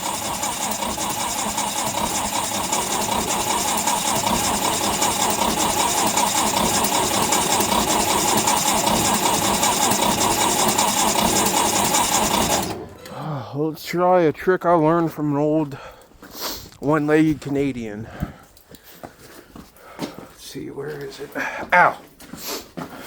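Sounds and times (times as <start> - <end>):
electric starter cranking engine: 0.0 - 13.3.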